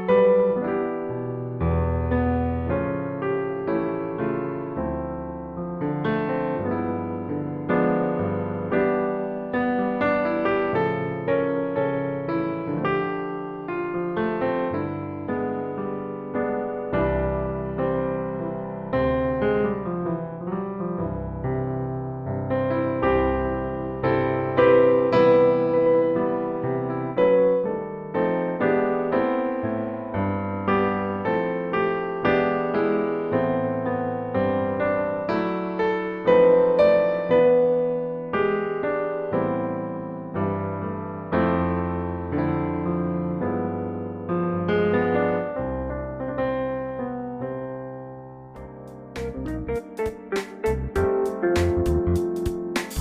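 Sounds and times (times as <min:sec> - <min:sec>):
gentle piano music: 0:00.0 - 0:53.0.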